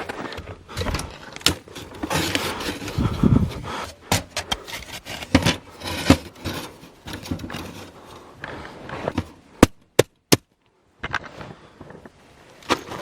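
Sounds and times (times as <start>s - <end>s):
rustling and scraping: 0.0s - 9.8s, 11.0s - 13.0s.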